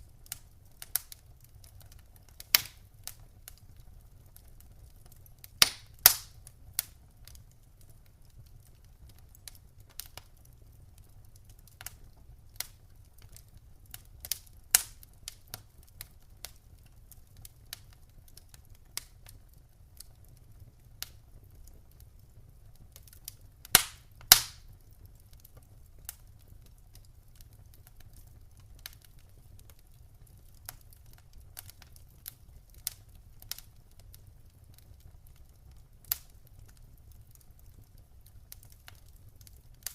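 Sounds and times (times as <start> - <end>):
low rumble of flames: 0.0 - 39.9
sharp pops from fire: 0.0 - 39.9
wood fire crackling: 0.0 - 39.9.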